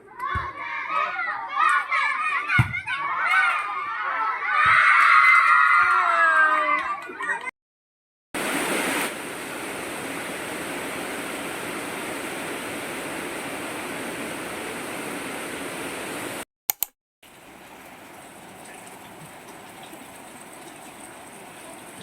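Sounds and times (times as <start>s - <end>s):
heavy rain falling: 8.4s - 16.4s
short clicks: 16.7s - 17.0s.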